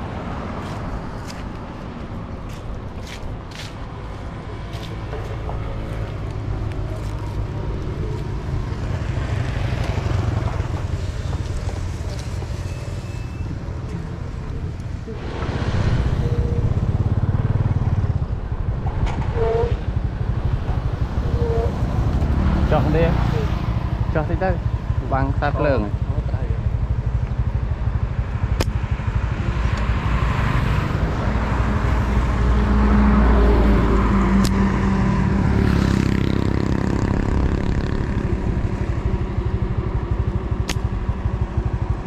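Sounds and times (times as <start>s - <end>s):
small engine rumbling: 29.0s - 42.0s.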